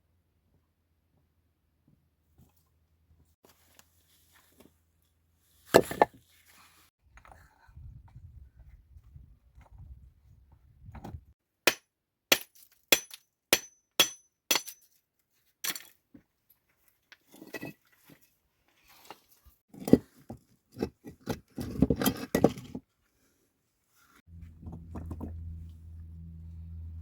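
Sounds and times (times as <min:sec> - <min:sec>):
knocks and clatter: 0:24.4 - 0:25.6.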